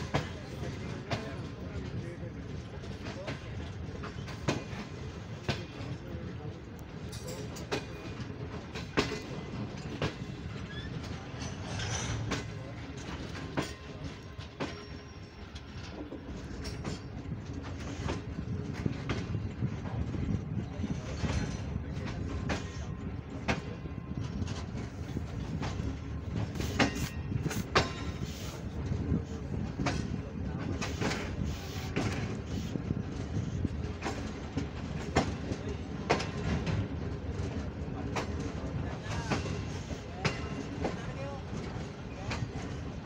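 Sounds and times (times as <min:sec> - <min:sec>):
train wheels rumbling: 0:00.0 - 0:43.0.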